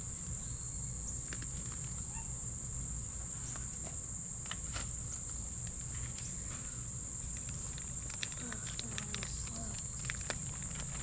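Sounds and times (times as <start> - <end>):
insect chorus high-pitched trill: 0.0 - 5.6
faint clicks: 7.3 - 10.9.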